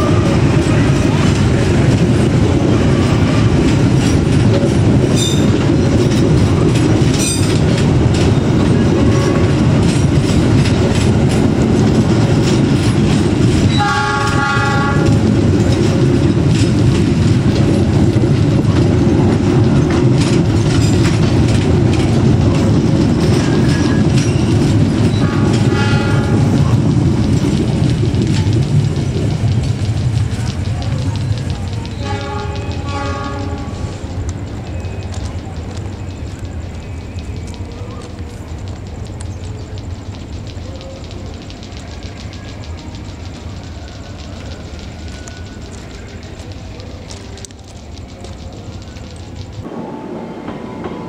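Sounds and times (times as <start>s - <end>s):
wheels clattering over rail joints: 0.0s - 49.7s
train rumbling past: 0.0s - 51.0s
train horn: 13.7s - 15.2s, 25.2s - 26.5s, 32.0s - 33.8s.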